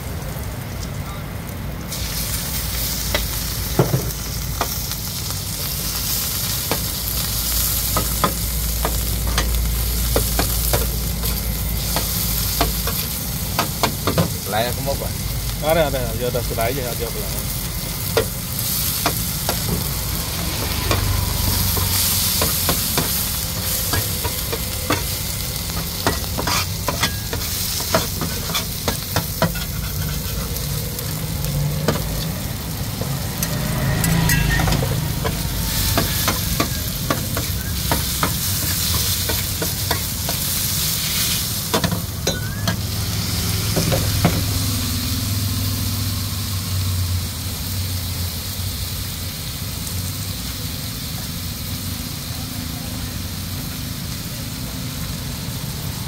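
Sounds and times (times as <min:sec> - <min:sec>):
meat and noodles sizzling: 0:00.0 - 0:56.0
metal spatula scraping pan: 0:26.0 - 0:30.6, 0:33.3 - 0:40.4.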